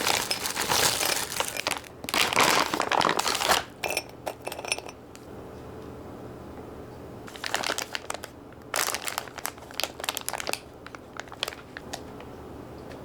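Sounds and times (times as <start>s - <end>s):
packaging crinkling: 0.0s - 3.8s, 7.3s - 12.2s.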